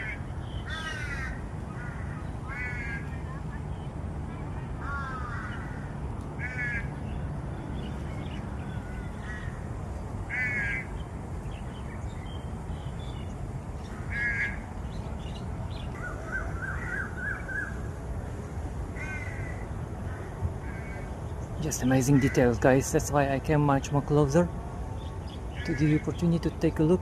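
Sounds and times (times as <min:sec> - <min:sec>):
bird cawing: 0:00.0 - 0:03.1, 0:04.8 - 0:06.9, 0:10.3 - 0:10.9, 0:13.8 - 0:14.7, 0:16.0 - 0:17.8, 0:19.0 - 0:21.1.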